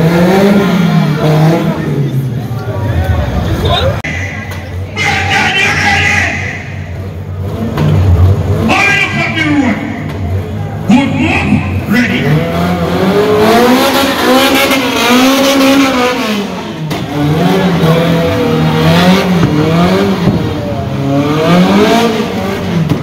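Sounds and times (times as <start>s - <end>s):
car engine revving hard: 0.0s - 2.3s, 11.7s - 23.0s.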